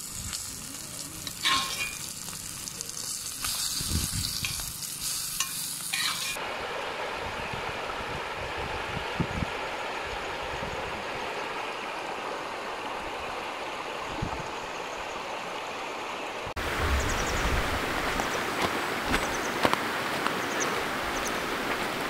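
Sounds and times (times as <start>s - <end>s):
river rushing over rocks: 16.6s - 22.0s.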